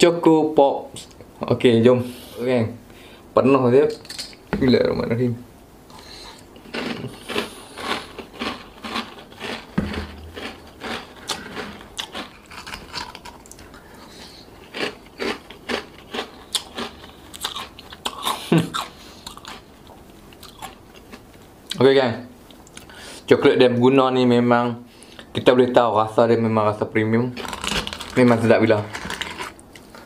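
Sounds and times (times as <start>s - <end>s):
crunchy cereal chewing: 5.9s - 21.2s, 27.4s - 30.0s.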